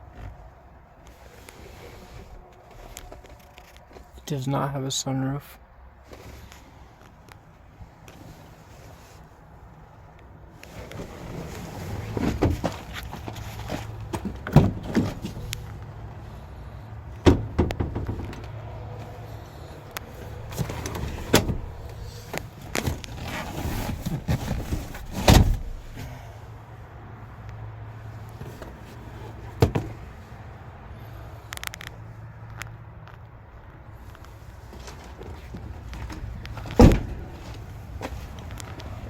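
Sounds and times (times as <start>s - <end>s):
truck doors clunking: 10.8s - 15.8s, 17.1s - 26.2s, 34.8s - 39.0s.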